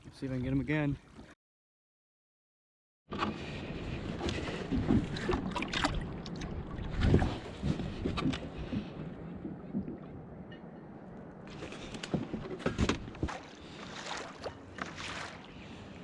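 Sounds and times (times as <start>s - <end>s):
water sloshing against kayak hull: 0.0s - 1.4s, 3.1s - 10.2s, 11.5s - 16.0s
wind on microphone: 3.7s - 10.6s.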